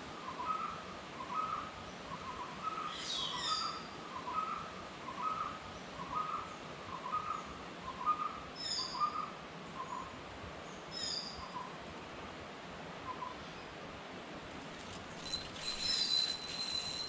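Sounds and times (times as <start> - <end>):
bird giving high falling chirp: 15.2 - 17.0.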